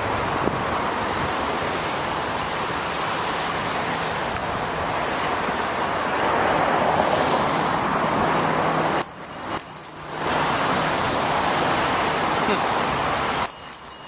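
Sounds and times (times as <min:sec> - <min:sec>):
rain: 0:00.0 - 0:09.0, 0:10.2 - 0:13.5
bicycle on wet road: 0:00.0 - 0:14.0
short high ringing: 0:09.0 - 0:10.4, 0:13.4 - 0:14.0.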